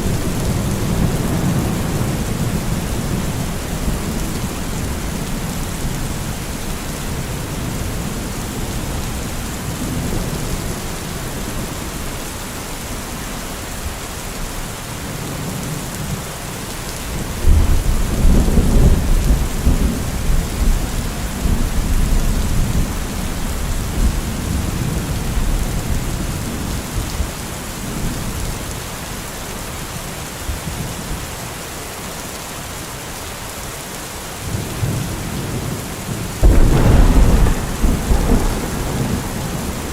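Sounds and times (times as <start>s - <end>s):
steady rain: 0.0s - 39.9s
thunder rumbling: 36.4s - 39.9s.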